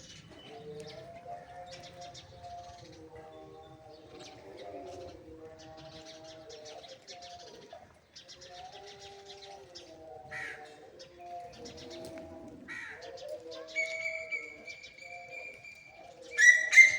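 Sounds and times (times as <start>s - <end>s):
bird cooing: 9.1s - 16.9s.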